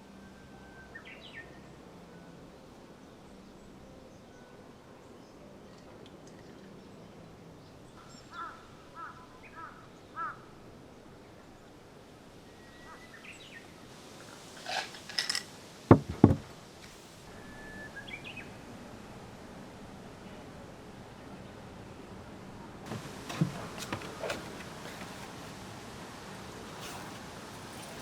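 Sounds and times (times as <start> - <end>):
crow cawing: 8.3 - 10.4
brief clatter: 14.6 - 17.0
loud knocks: 15.9 - 16.6.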